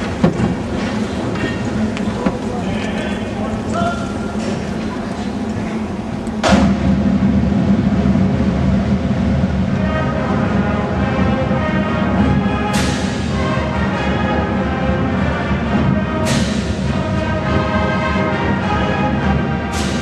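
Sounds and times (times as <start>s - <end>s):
marching band brass chords: 0.0s - 20.0s
drums: 14.8s - 17.2s, 19.1s - 20.0s.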